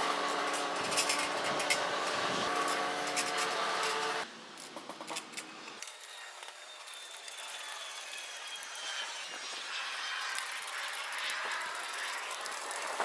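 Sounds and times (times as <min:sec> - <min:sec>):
electric drill driving screws: 0:00.0 - 0:04.3.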